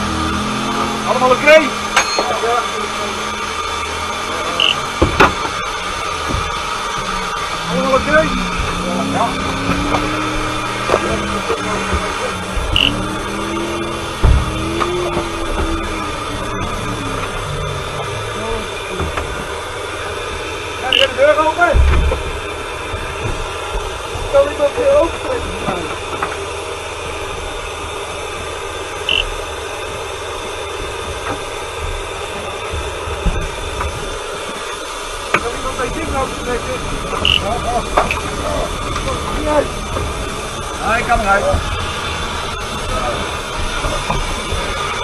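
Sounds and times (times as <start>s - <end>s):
truck engine running: 0.0s - 45.0s
short high beep: 4.6s - 4.8s, 12.8s - 13.0s, 20.9s - 21.1s, 29.1s - 29.3s, 37.2s - 37.4s.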